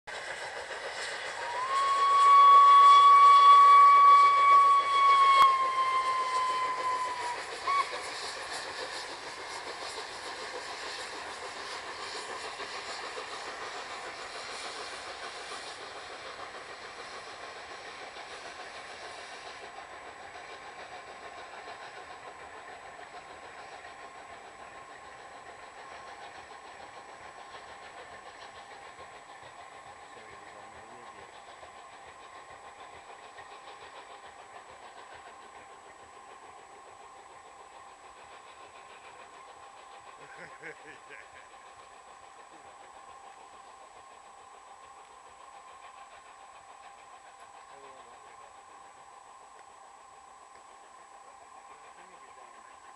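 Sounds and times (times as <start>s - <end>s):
steam locomotive hauling train: 0.0s - 52.9s
steam whistle: 1.3s - 8.1s.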